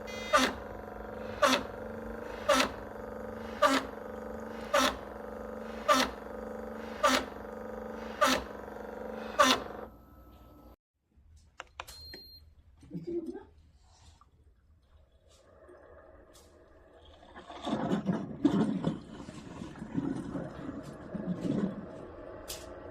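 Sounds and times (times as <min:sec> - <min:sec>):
coffee maker pump humming: 0:00.0 - 0:10.8.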